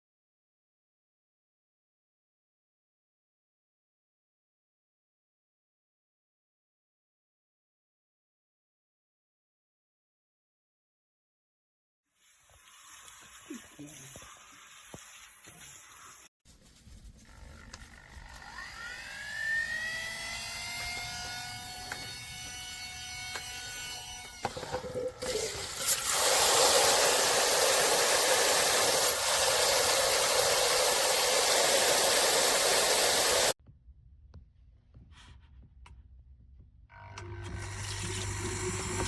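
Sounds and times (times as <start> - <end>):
water spraying from shower head: 12.2 - 16.3, 25.3 - 33.6
electric pump whine: 17.2 - 33.6, 36.9 - 39.0.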